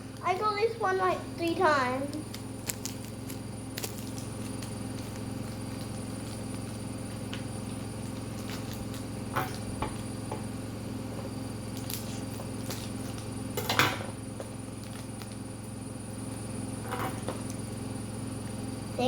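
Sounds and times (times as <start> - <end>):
steady low hum: 0.0 - 19.0
plastic packaging crinkling: 2.2 - 9.1.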